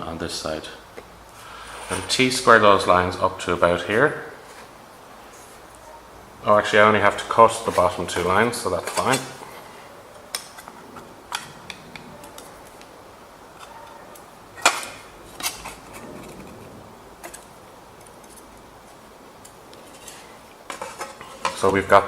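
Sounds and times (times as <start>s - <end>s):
metal tools clinking on sheet metal: 7.2s - 9.6s.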